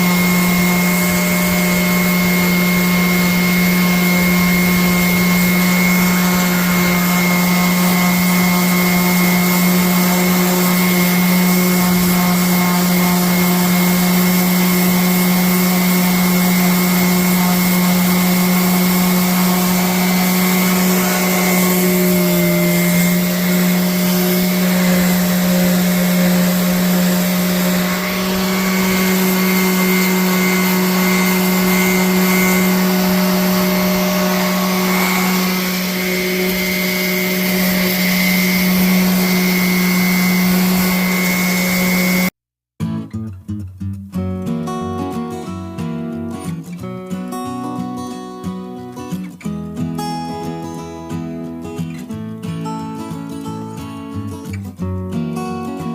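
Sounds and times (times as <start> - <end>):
orbital sander motor whine: 0.0 - 42.4
shop vac running: 0.0 - 42.4.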